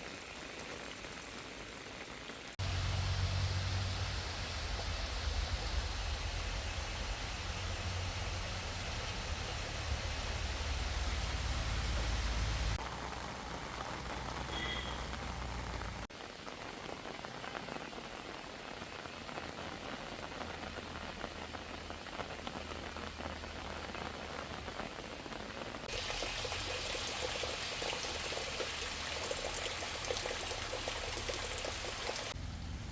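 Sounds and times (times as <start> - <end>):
steady rain falling: 0.0 - 32.9
low rumble: 2.6 - 12.8.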